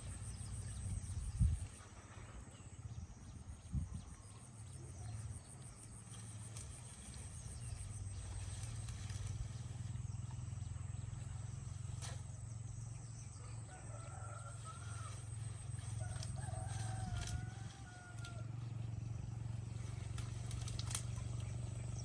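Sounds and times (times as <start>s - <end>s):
steady low hum: 0.0s - 22.0s
rooster crowing faintly: 13.4s - 18.7s.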